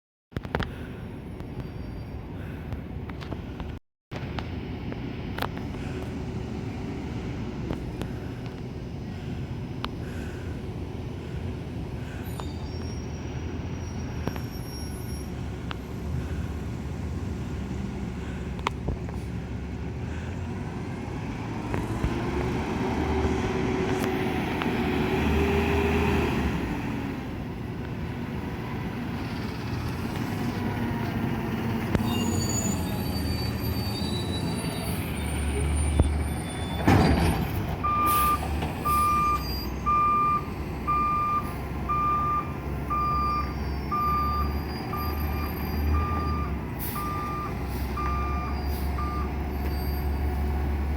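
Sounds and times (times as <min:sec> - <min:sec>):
garbage truck diesel engine: 0:04.2 - 0:50.9
whining hydraulic squeal: 0:12.2 - 0:15.4, 0:31.9 - 0:40.5, 0:43.1 - 0:47.3, 0:48.0 - 0:50.4.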